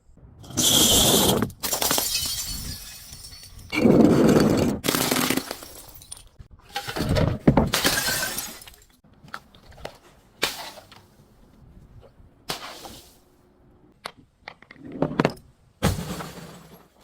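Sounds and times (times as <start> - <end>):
glass smashing: 1.6 - 3.8, 7.7 - 8.9.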